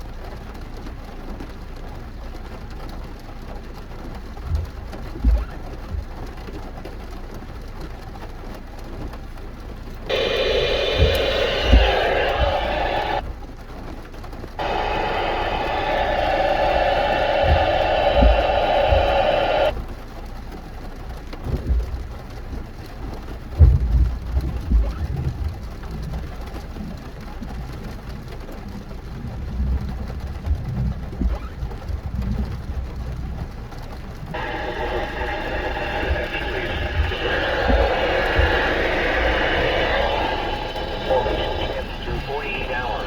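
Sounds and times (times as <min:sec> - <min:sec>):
loud steady multi-tone sound: 0:10.1 - 0:13.2, 0:14.6 - 0:19.8, 0:34.4 - 0:43.0.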